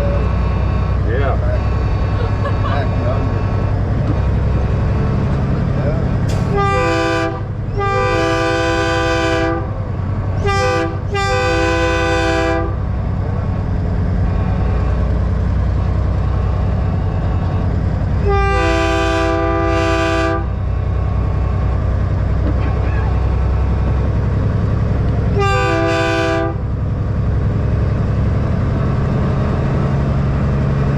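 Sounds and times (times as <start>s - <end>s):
diesel engine rumble: 0.0s - 30.9s
train horn blasts: 6.4s - 9.8s, 10.4s - 12.9s, 18.2s - 20.7s, 25.3s - 26.7s.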